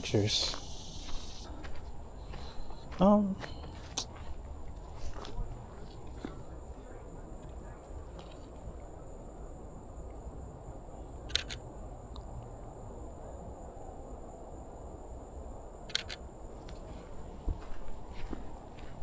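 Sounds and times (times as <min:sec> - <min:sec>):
camera shutter double click: 0:11.3 - 0:11.6, 0:15.9 - 0:16.2.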